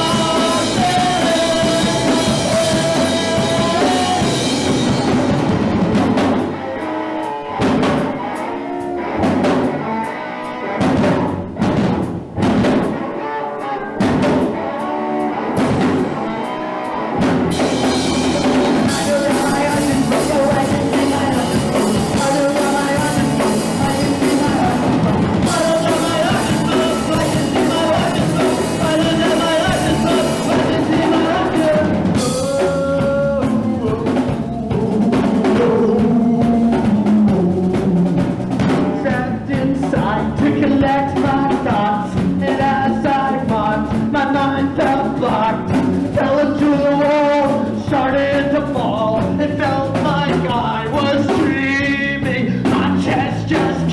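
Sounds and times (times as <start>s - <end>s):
punk rock band playing: 0.0s - 53.9s
drum hits: 10.8s - 13.0s.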